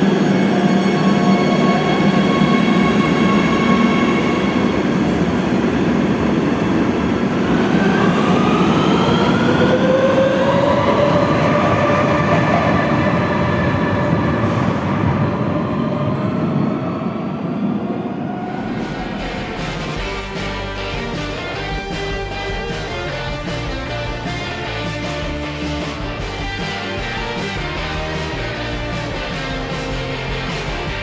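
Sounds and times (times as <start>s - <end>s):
train wheels rumbling on rail: 0.0s - 20.3s
electric motor whine rising: 17.9s - 20.1s.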